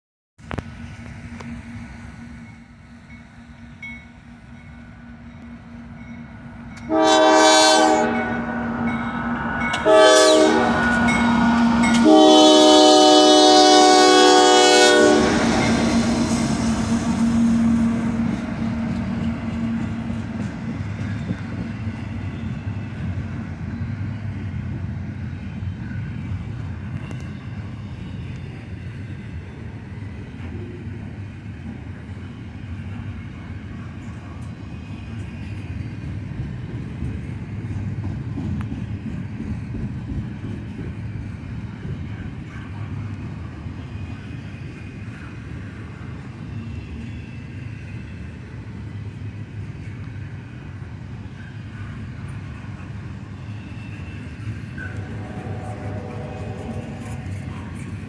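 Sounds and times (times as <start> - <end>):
train cars rolling rumble: 0.4 - 58.0
locomotive horn blasts: 6.8 - 8.9, 9.8 - 18.4, 54.8 - 58.0.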